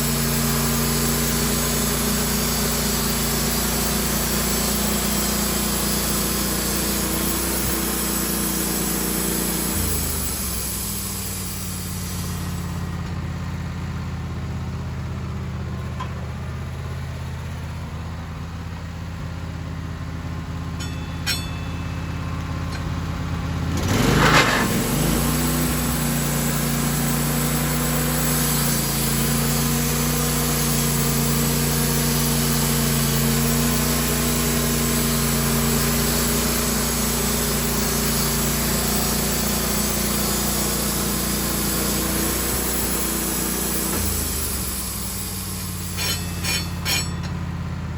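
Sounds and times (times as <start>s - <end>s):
saw cutting through log: 0.0s - 12.7s, 23.8s - 47.2s
sawmill engine: 0.0s - 47.9s.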